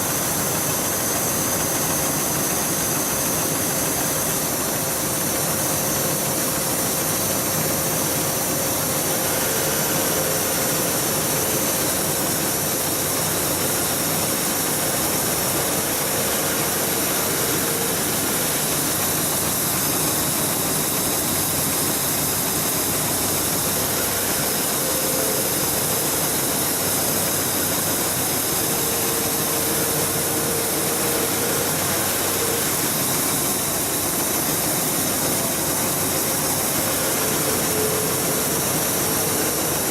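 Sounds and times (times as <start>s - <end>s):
sewing machine running: 0.0s - 39.9s.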